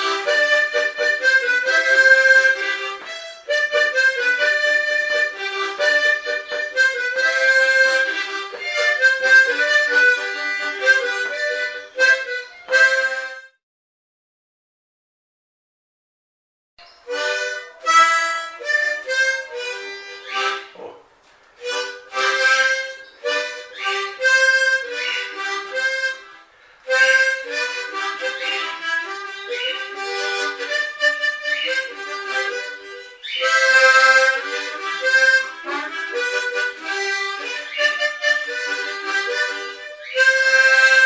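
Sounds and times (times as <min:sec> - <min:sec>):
harmonica melody: 0:00.0 - 0:13.6, 0:16.8 - 0:41.0.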